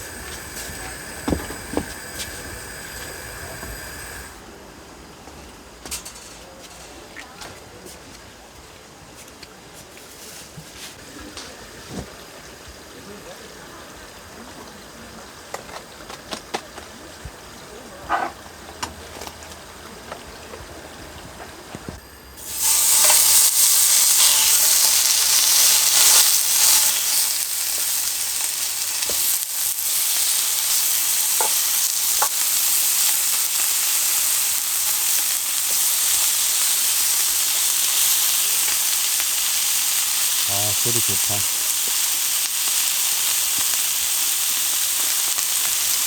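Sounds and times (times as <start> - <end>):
food sizzling in a pan: 0.0 - 4.4, 21.9 - 46.0.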